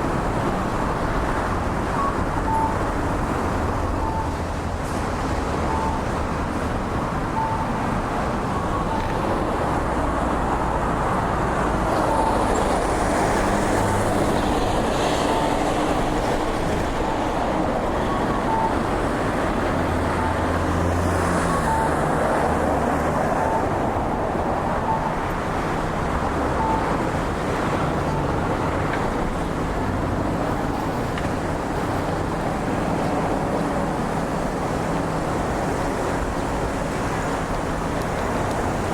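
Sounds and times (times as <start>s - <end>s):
road traffic passing: 0.0s - 38.9s
short beeps: 2.0s - 2.9s, 4.0s - 4.4s, 5.6s - 6.1s, 7.4s - 7.7s, 12.1s - 12.4s, 18.0s - 18.9s, 20.1s - 20.6s, 21.4s - 22.0s, 24.8s - 25.2s, 26.6s - 27.0s.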